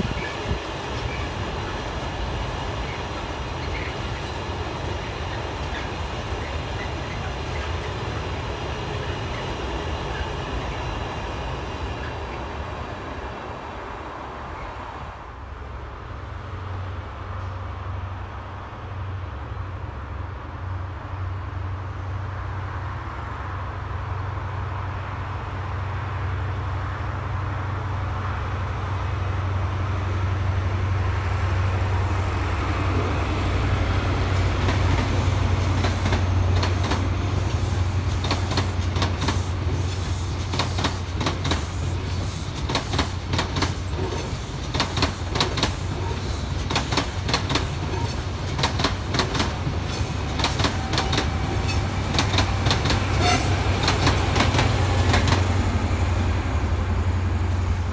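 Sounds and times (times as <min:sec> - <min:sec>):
train wheels clattering over rail joints: 0:00.0 - 0:10.4, 0:34.2 - 0:55.6
diesel train engine rumble: 0:00.0 - 0:57.9.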